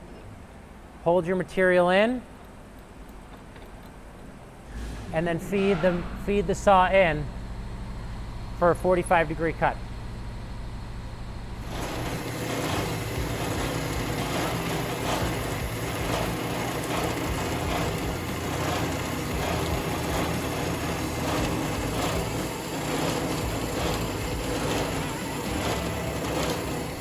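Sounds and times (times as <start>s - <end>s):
band saw motor hum: 6.0s - 27.0s
saw blade cutting stock: 11.6s - 27.0s.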